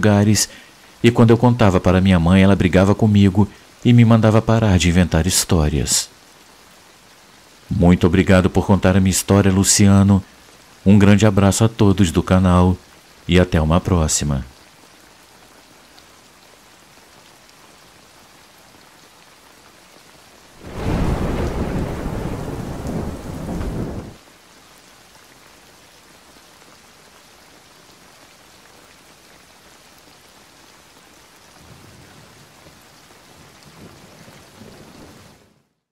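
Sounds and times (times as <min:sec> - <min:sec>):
steady rain: 0:00.0 - 0:35.9
thunder rumbling: 0:20.6 - 0:24.2.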